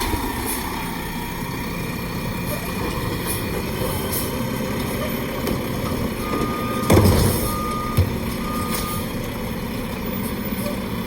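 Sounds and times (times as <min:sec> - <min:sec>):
garbage truck engine running: 0:00.0 - 0:11.0
reversing alarm beeps: 0:06.1 - 0:09.1.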